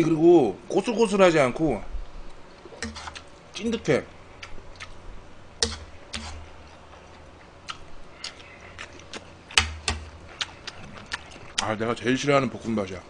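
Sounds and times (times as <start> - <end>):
wet mouth chewing: 4.4 - 5.0, 5.6 - 11.8.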